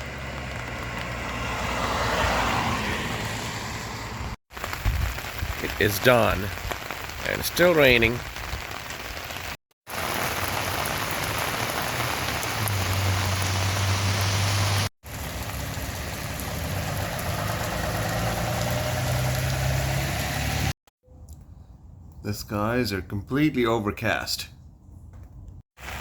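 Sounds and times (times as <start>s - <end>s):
rain splashing on ground: 0.0s - 3.8s, 4.5s - 20.8s, 25.8s - 26.0s.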